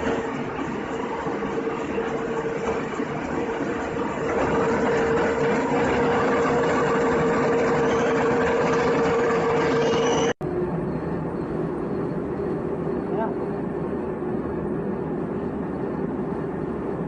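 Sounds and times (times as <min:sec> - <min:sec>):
drilling machine whine: 0:00.0 - 0:10.4
machining noise: 0:00.0 - 0:11.5.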